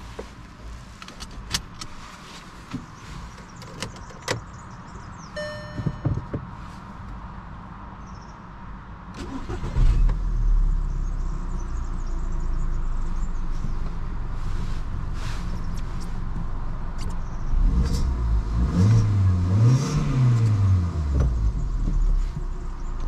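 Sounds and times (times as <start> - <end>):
seatbelt buckle clicks: 1.0 - 1.9
short electronic beep: 5.4 - 6.3
car engine starting and idling: 8.9 - 23.0.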